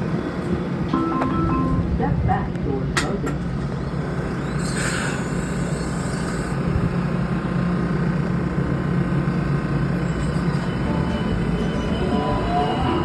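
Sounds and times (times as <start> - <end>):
train doors hissing: 4.6 - 6.5
train motor humming: 8.2 - 13.0.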